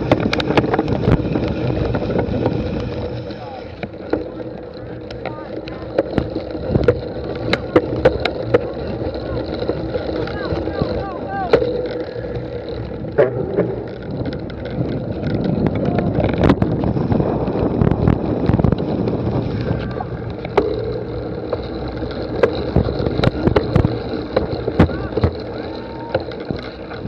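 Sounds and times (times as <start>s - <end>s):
sharp clicks and knocks: 0.0s - 27.0s
distant spectators' voices: 2.9s - 16.7s, 19.5s - 27.0s.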